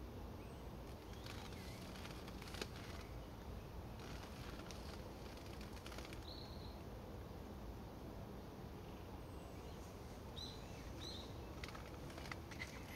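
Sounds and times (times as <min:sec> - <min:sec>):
low outdoor rumble: 0:00.0 - 0:12.9.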